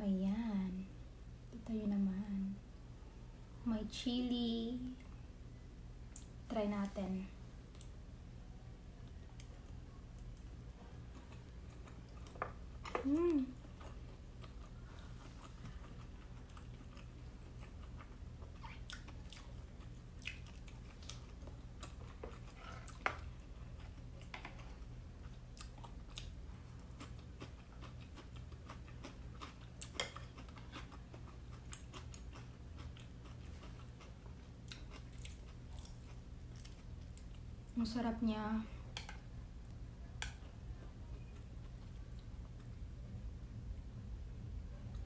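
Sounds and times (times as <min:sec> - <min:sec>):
steady low hum: 0:00.0 - 0:45.0
person chewing food: 0:09.3 - 0:12.8, 0:13.6 - 0:37.5.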